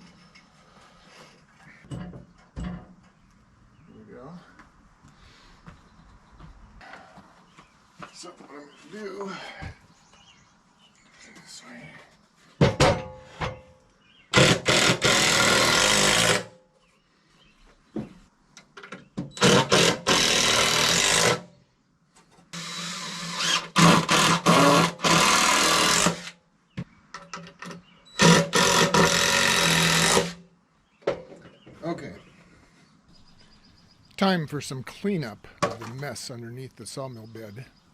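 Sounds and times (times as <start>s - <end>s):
power drill driving screws: 14.3s - 16.5s, 19.3s - 21.4s, 22.6s - 26.4s, 28.2s - 30.4s.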